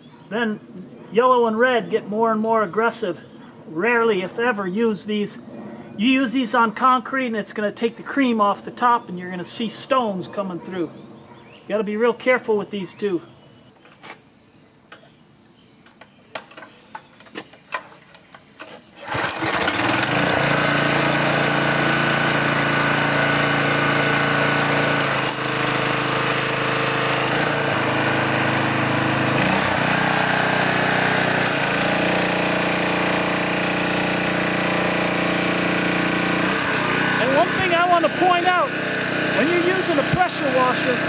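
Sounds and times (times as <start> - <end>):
pressure washer engine running: 19.0 - 41.0.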